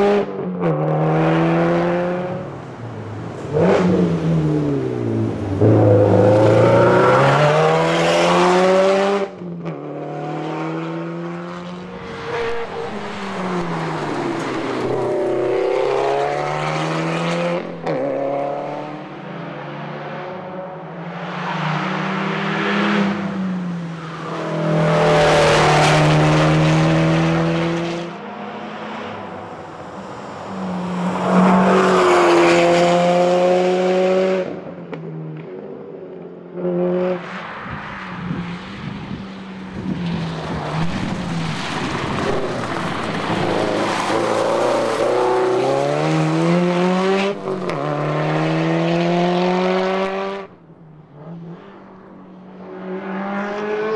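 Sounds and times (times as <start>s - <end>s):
rally car engine revving hard: 40.8s - 50.5s.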